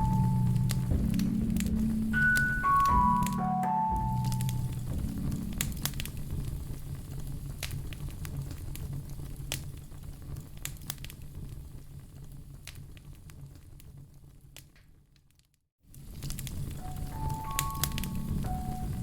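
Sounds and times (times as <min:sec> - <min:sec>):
low steady rumble: 0:00.0 - 0:10.6
wood fire crackling: 0:00.0 - 0:19.0.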